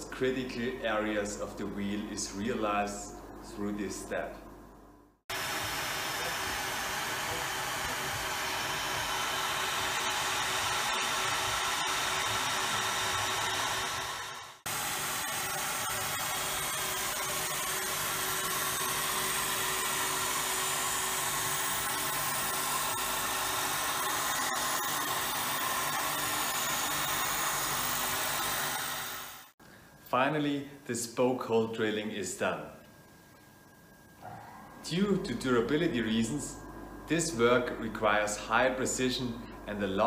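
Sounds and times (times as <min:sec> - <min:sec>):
milling machine whine: 0:05.3 - 0:29.6.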